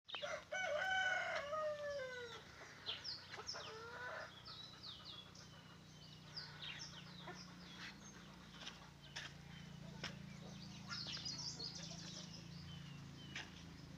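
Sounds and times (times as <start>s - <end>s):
small birds chirping: 0.1s - 13.9s
rooster crowing: 0.2s - 2.5s.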